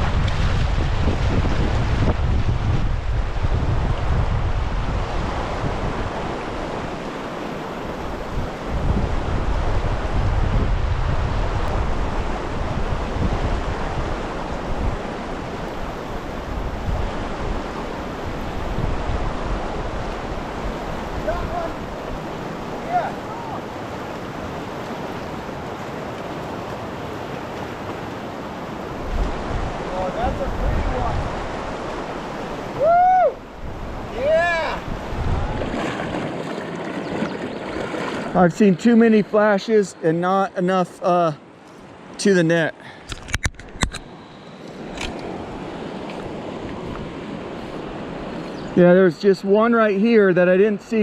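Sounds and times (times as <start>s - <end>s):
creek flowing: 0.0s - 10.7s, 11.4s - 50.9s
wind buffeting microphone: 0.0s - 38.4s.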